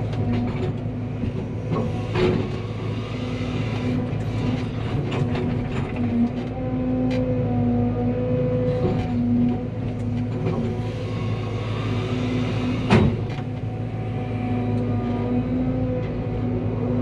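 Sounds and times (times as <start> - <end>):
excavator diesel engine running: 0.0 - 17.0
machine clanks and knocks: 4.6 - 6.4, 12.8 - 13.7.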